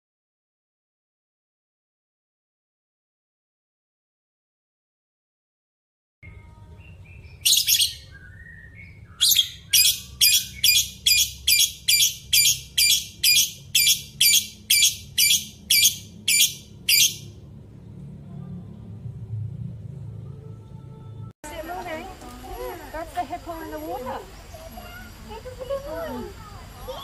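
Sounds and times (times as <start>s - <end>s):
bird calling harshly: 9.2s - 17.3s
low steady rumble: 10.9s - 27.0s.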